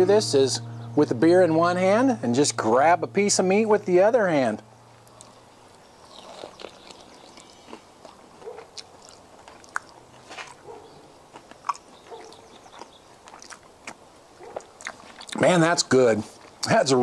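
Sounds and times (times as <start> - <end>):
wet mouth clicks and smacks: 8.1 - 10.6, 12.6 - 15.4.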